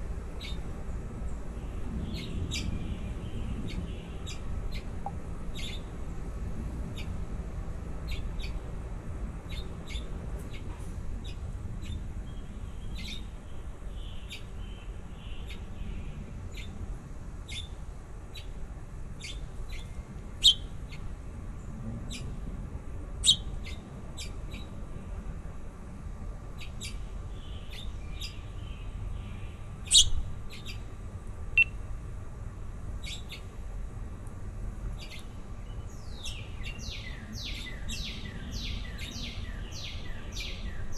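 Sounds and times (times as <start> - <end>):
baby birds chirping: 19.2 - 21.0, 23.2 - 24.6, 29.8 - 30.8, 36.0 - 40.9.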